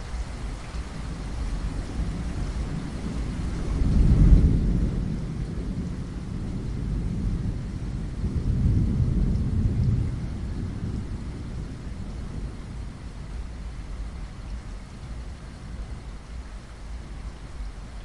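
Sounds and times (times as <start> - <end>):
steady rainfall: 0.0 - 18.0
thunder rumbling: 1.0 - 14.2.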